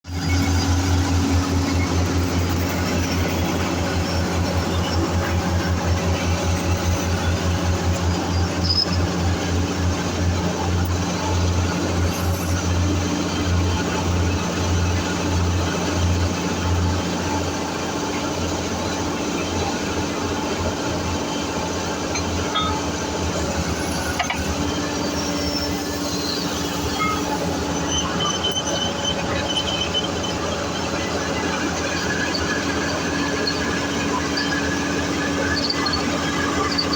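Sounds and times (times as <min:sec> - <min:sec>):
heavy construction machinery running: 0:00.0 - 0:36.9
heavy diesel engine pulsing: 0:00.0 - 0:36.9
high metallic squeaks: 0:00.1 - 0:09.4, 0:22.2 - 0:36.9.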